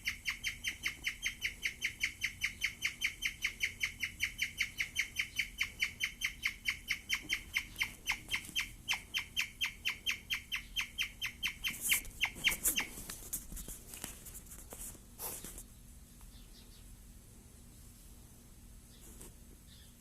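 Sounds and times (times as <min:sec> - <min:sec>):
guinea pig chirping: 0:00.0 - 0:13.0.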